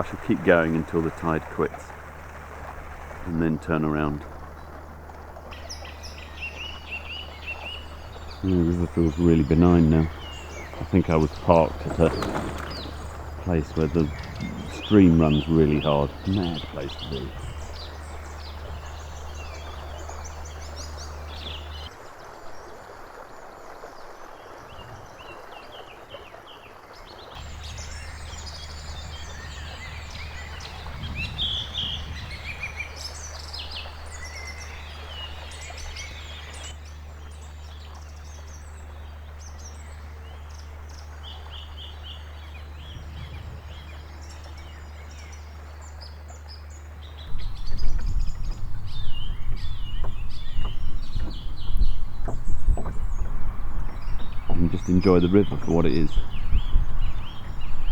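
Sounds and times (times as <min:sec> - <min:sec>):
rough low noise: 0:00.0 - 0:21.9, 0:27.4 - 0:57.9
small birds chirping: 0:00.0 - 0:21.9, 0:24.5 - 0:57.9
steady low hum: 0:00.0 - 0:21.9, 0:27.4 - 0:57.9.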